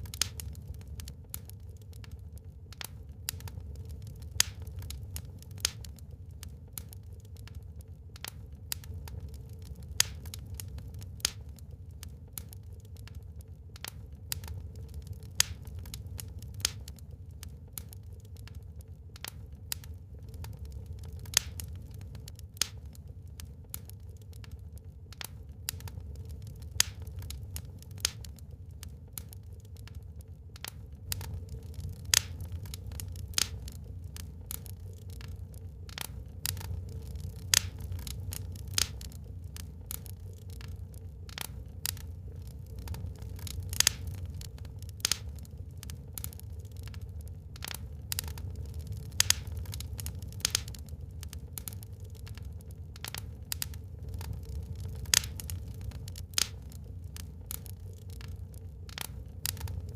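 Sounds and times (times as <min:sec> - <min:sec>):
sharp pops of fire: 0:00.0 - 0:59.9
wood fire crackling: 0:00.0 - 0:59.9.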